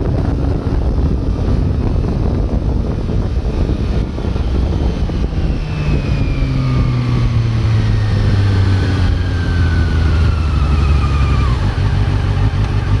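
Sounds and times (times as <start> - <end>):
motorcycle engine revs dropping: 3.6 - 13.0.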